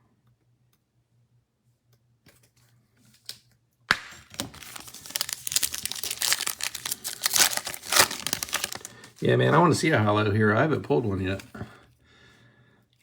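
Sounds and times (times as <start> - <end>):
foil wrapper crinkling: 3.9 - 9.9
foil pack tearing open: 4.2 - 9.2.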